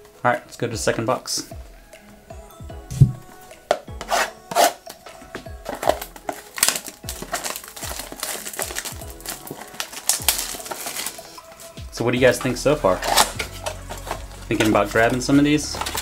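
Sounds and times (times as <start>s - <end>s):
background music: 0.0s - 16.0s
packaging being torn open: 5.7s - 11.6s, 13.0s - 14.2s.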